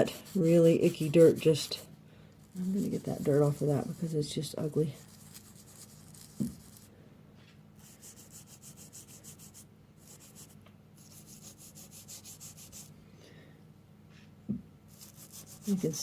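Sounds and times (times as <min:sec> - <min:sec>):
brisk scrubbing strokes: 0:00.0 - 0:06.9, 0:14.9 - 0:16.0.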